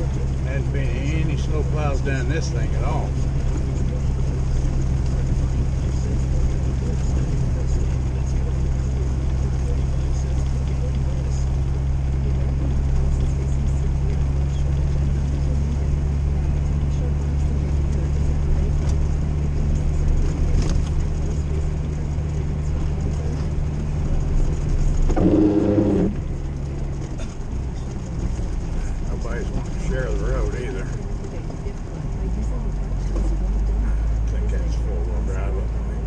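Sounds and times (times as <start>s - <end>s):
car engine running: 0.0s - 36.0s
brief pitched sound: 25.1s - 26.2s.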